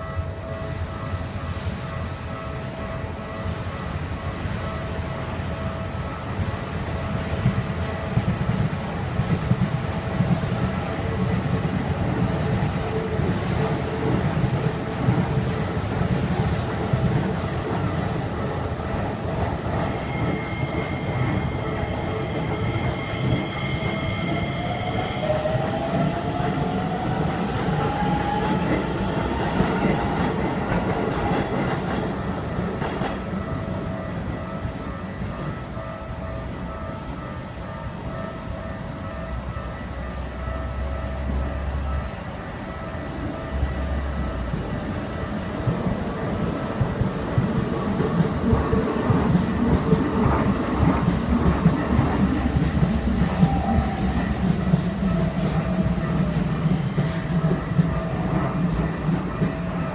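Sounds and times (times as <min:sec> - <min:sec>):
train wheels clattering on rails: 0:06.4 - 0:36.3, 0:44.4 - 0:59.9.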